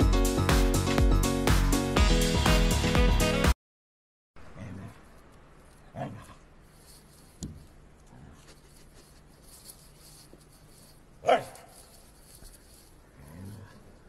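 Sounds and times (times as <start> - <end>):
dog barking: 5.9 - 6.4, 11.2 - 11.8.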